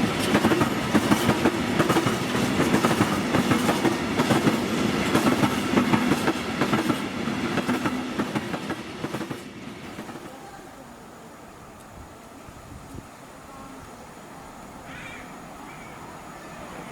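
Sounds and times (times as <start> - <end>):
train wheels clattering: 0.0 - 10.4.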